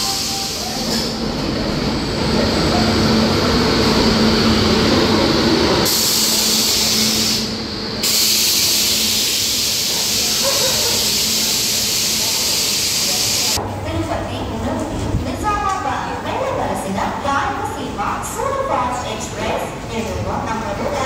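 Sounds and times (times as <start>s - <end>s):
air hissing: 5.8s - 13.6s.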